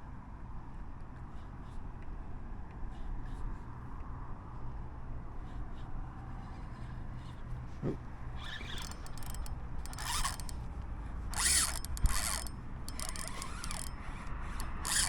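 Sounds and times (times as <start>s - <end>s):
fishing reel ratcheting: 8.4s - 10.7s, 11.3s - 15.0s.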